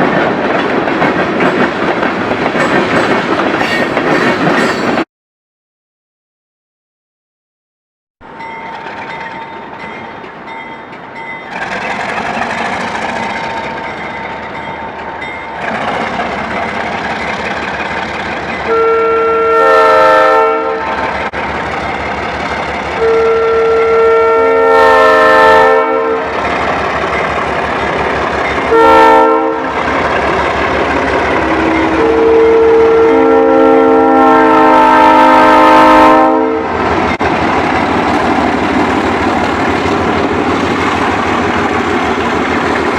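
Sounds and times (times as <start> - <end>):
diesel locomotive engines: 0.0 - 5.0, 8.2 - 42.9
train air horn blasts: 18.6 - 21.2, 23.0 - 26.4, 28.7 - 29.8, 31.5 - 36.8.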